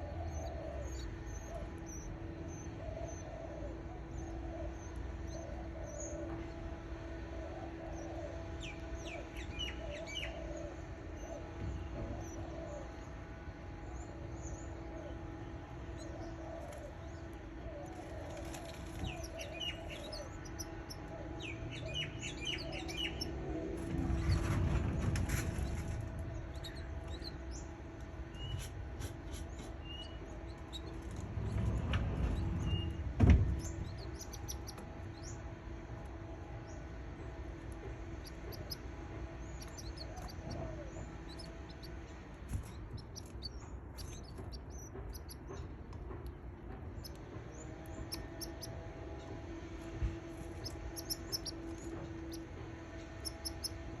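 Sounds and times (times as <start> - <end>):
low rumbling noise: 0.0 - 54.0
steady low hum: 0.0 - 54.0
canaries chirping: 15.8 - 35.5, 36.5 - 45.7, 47.8 - 49.4, 50.0 - 54.0.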